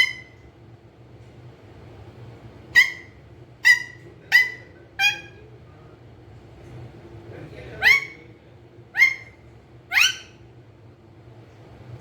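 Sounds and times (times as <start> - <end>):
parakeet shrill calls: 0.0 - 0.4, 2.7 - 5.4, 7.8 - 8.2, 8.9 - 10.4.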